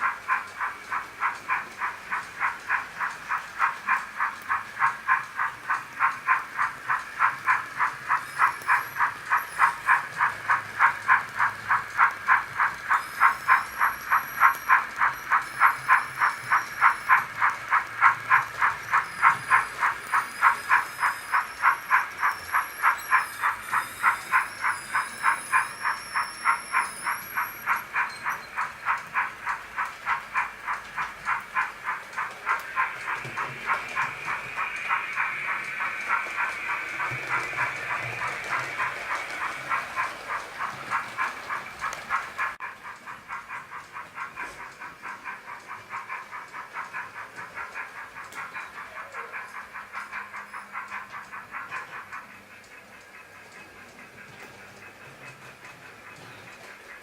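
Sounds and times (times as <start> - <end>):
model locomotive steam chuffs: 0.0 - 57.0
steady hiss: 0.0 - 57.0.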